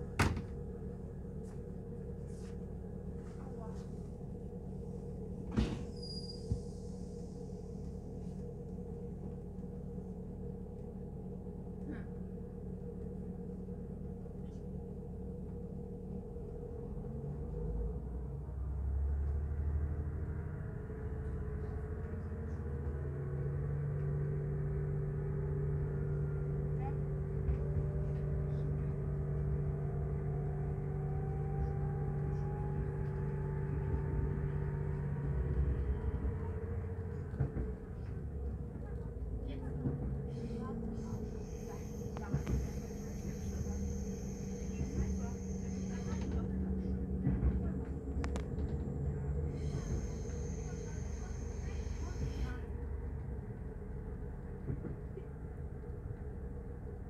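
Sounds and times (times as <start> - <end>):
train hum and rumble: 0.0 - 57.0
faint rising whine: 23.4 - 38.6.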